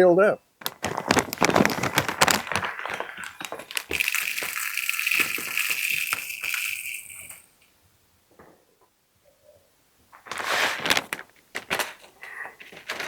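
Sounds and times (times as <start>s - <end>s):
birdseed clattering in plastic feeder: 0.6s - 7.6s
birdseed pouring hiss: 1.2s - 7.6s.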